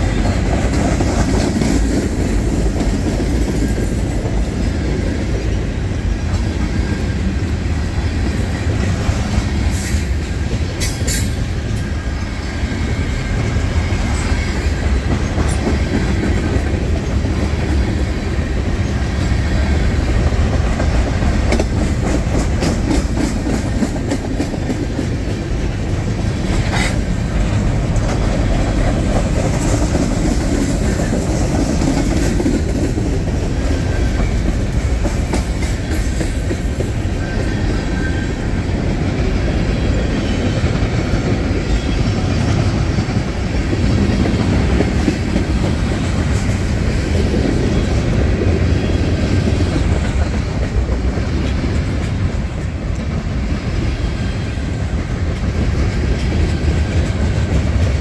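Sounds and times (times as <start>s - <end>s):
train wheels rumbling on rail: 0.0s - 58.0s
wheels clicking over rail joints: 13.7s - 39.6s.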